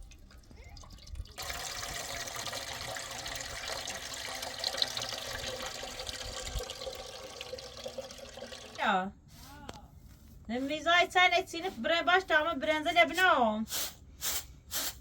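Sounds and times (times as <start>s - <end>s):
water running: 0.0s - 9.0s.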